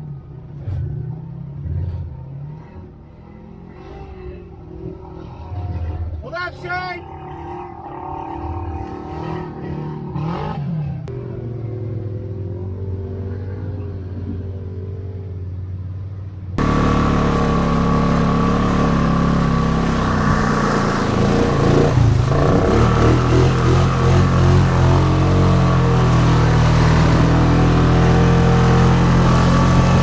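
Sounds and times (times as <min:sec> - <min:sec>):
atv engine running: 0:16.6 - 0:30.0.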